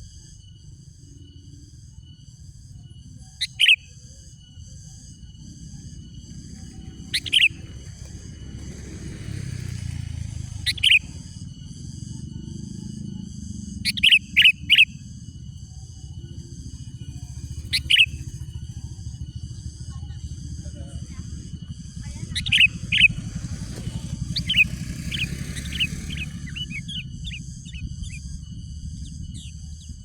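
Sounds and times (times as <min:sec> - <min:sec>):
high-pitched hum: 0:00.0 - 0:30.0
bulbul calling in sharp bursts: 0:03.4 - 0:29.8
low rumble: 0:15.2 - 0:30.0.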